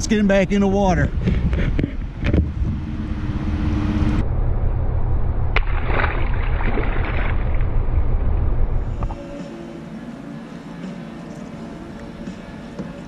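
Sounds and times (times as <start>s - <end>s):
wind on microphone: 0.7s - 9.3s
water sloshing: 5.6s - 7.7s.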